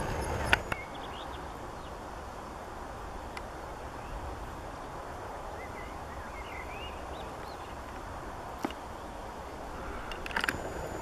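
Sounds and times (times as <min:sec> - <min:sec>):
small bird chirping: 0:00.0 - 0:02.0.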